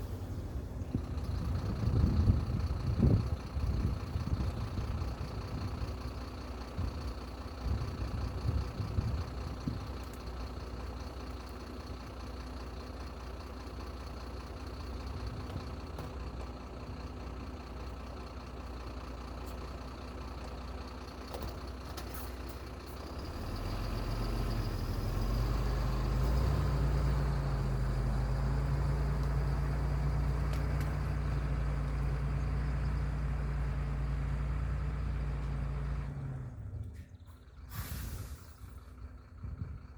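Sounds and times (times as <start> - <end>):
heavy machine engine revving: 19.1 - 39.7.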